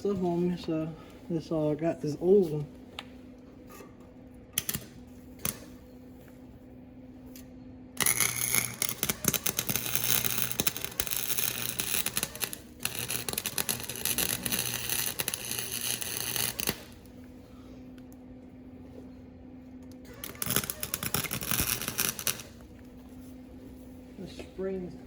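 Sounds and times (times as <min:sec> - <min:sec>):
welder electrical hum: 0:00.0 - 0:25.0
welding arc crackling: 0:04.6 - 0:05.8, 0:08.0 - 0:17.2, 0:20.0 - 0:22.8.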